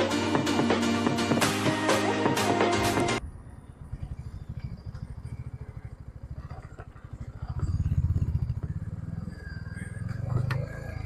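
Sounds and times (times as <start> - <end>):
motorcycle engine idling: 3.2 - 11.0.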